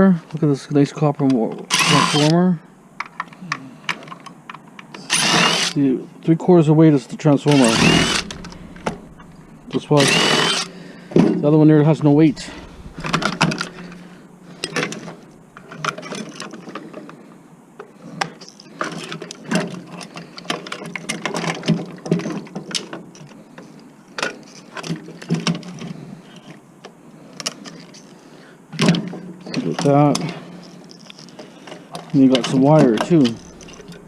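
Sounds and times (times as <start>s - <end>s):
tools and parts clanking: 7.5s - 10.7s, 28.8s - 34.0s.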